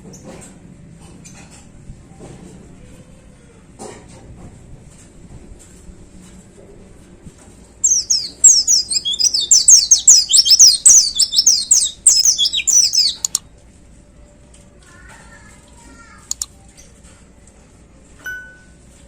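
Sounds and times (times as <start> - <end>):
bird twittering rapidly: 7.8 - 13.4.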